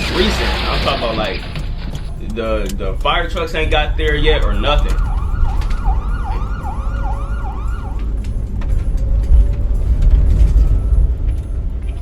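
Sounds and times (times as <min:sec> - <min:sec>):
emergency vehicle siren: 0:04.0 - 0:12.0.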